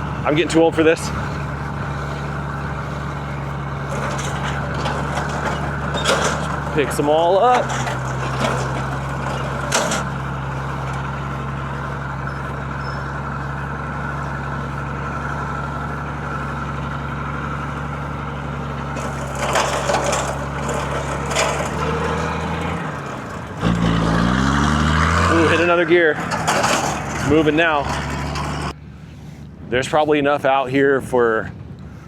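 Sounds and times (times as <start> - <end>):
engine drone: 0.0 - 29.7
machinery clanking knocks: 2.3 - 12.0, 18.8 - 24.0, 26.1 - 28.7.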